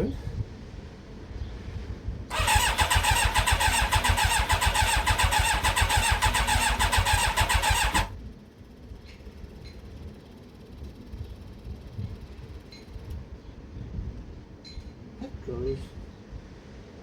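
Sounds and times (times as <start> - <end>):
motorcycle starter cranking: 2.3 - 8.2.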